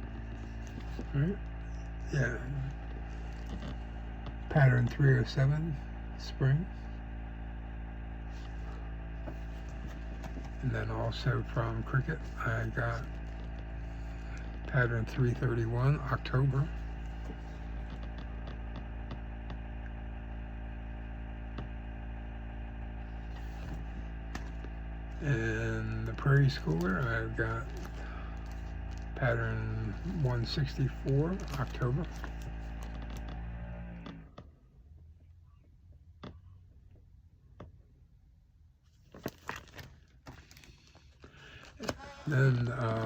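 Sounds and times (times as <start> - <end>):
paper rustling and crackling: 0.0 - 2.0, 2.7 - 4.0, 8.3 - 10.7, 12.1 - 14.7, 23.2 - 24.8, 26.2 - 29.2, 29.8 - 33.4, 38.9 - 43.0
low electrical fan hum: 0.0 - 43.0.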